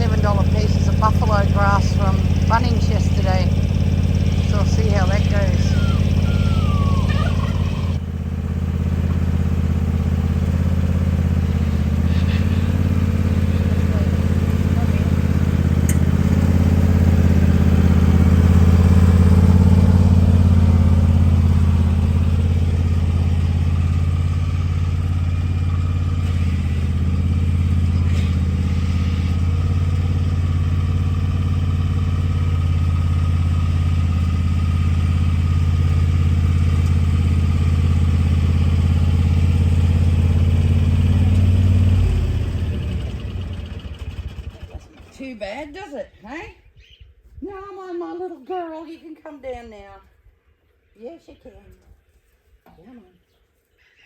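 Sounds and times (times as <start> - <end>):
engine humming: 0.0 - 46.2.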